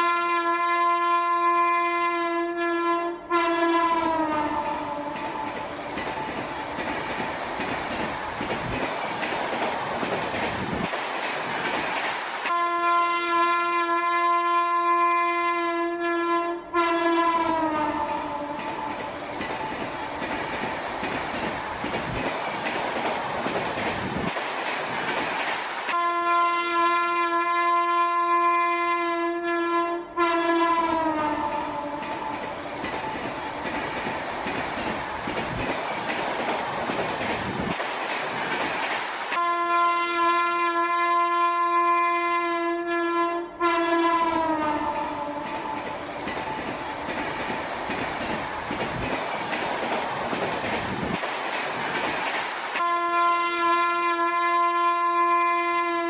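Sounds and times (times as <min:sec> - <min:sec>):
train horn: 0:00.0 - 0:05.5, 0:12.5 - 0:19.0, 0:25.9 - 0:32.3, 0:39.3 - 0:45.8, 0:52.8 - 0:56.0
train rumbling and clattering: 0:00.0 - 0:56.0.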